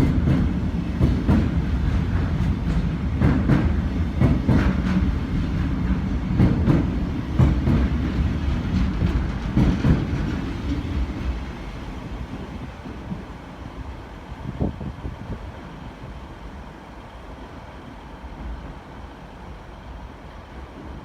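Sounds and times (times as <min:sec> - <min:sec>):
diesel train rumbling past: 0:00.0 - 0:21.0
wheels clicking over rail joints: 0:00.3 - 0:11.6.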